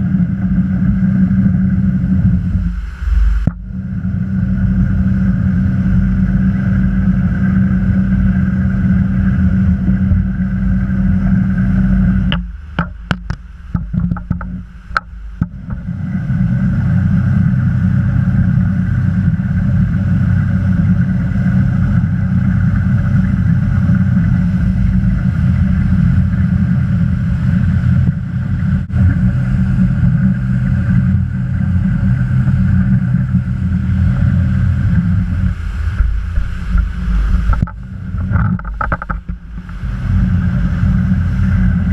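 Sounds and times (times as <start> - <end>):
motorboat engine running: 0.0 - 41.9
water noise: 0.0 - 41.9
wind noise: 0.0 - 41.9.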